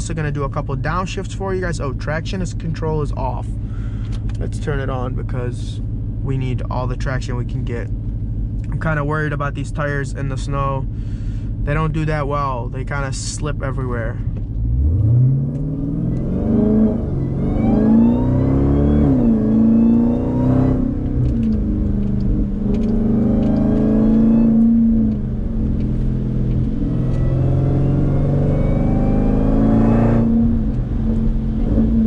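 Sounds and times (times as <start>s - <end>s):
supercharger whine: 0.0s - 32.0s
car engine accelerating hard: 13.4s - 32.0s.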